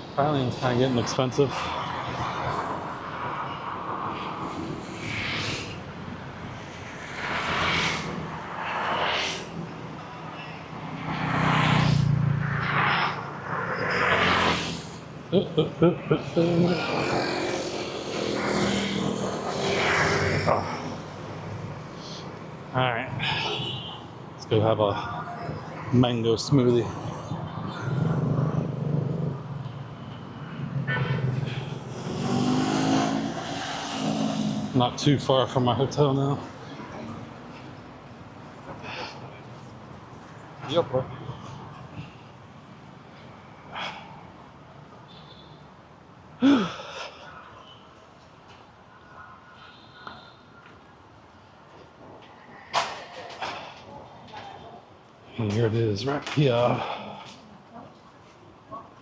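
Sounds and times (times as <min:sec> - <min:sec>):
vehicles passing: 0:00.0 - 0:59.0
loud engine passing close: 0:31.2 - 0:35.2.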